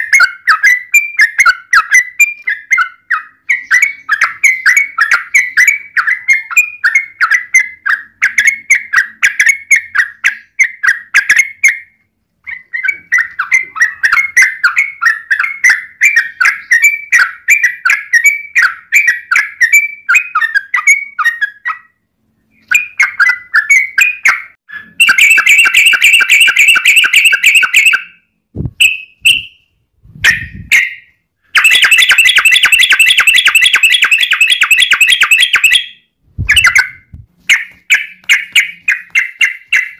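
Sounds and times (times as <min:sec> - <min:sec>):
bulbul chattering and trilling: 0:22.6 - 0:28.1, 0:31.6 - 0:39.9.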